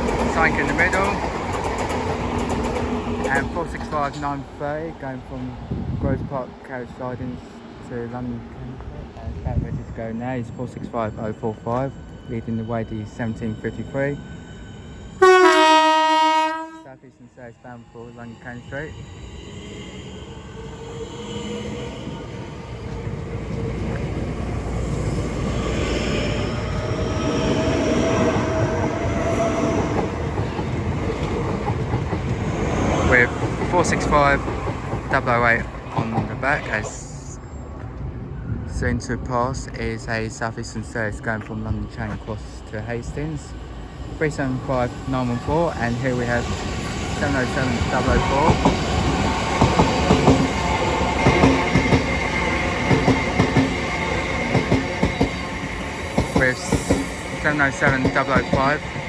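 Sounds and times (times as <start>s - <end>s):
train wheels clicking over rail joints: 0.0s - 4.5s, 28.0s - 36.5s, 44.4s - 59.0s
electric train pulling out: 0.0s - 37.8s, 39.0s - 59.0s.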